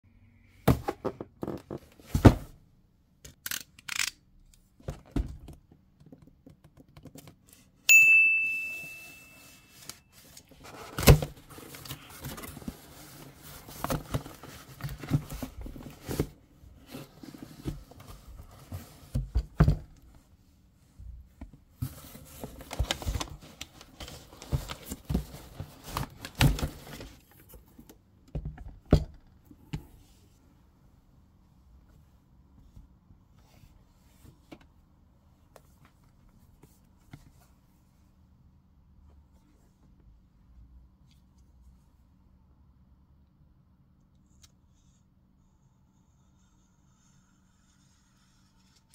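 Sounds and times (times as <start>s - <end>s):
ringing ding: 7.9s - 9.7s.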